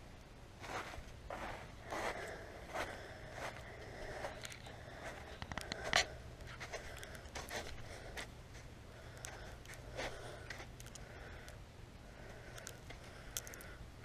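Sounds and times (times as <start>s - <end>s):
footsteps crunching on snow: 0.6s - 8.3s.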